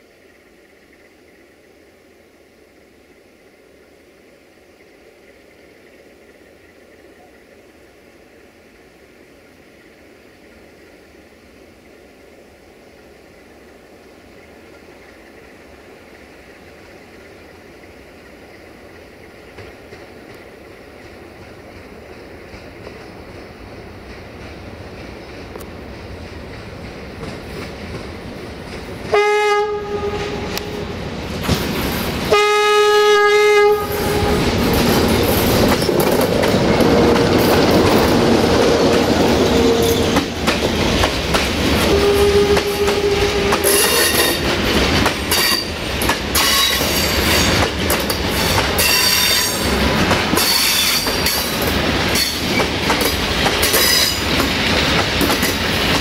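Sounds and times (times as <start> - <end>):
locomotive horn blasts: 29.1 - 30.9, 32.3 - 34.6, 41.8 - 44.4
wheels clicking over rail joints: 33.8 - 56.0.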